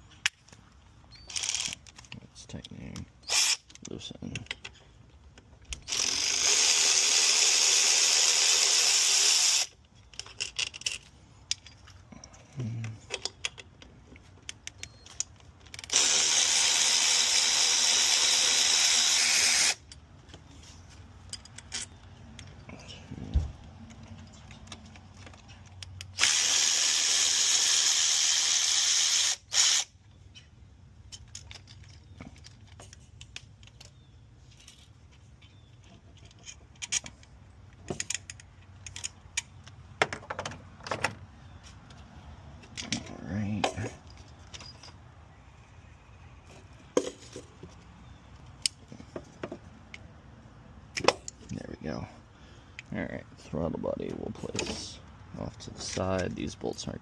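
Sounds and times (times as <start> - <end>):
cordless power tool running: 15.9 - 19.8.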